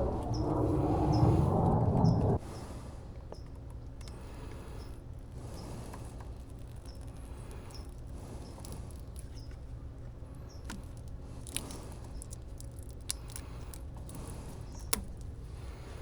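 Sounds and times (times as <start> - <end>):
steady low hum: 0.0 - 2.4.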